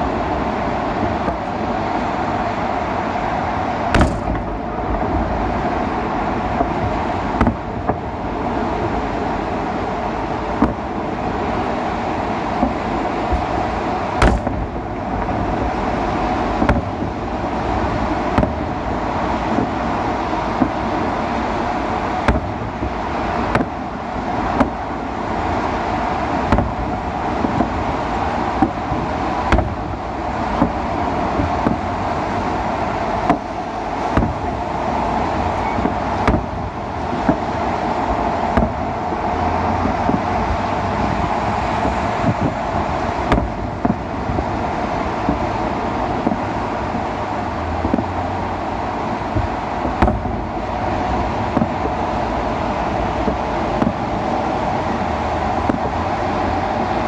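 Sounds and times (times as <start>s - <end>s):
distant fireworks bangs: 0.0s - 2.6s, 3.2s - 57.0s
background rumble: 0.0s - 57.0s.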